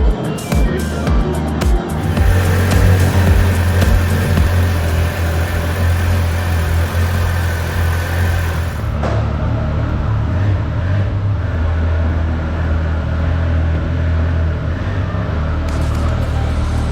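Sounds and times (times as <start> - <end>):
motorcycle engine hum: 1.9 - 9.1.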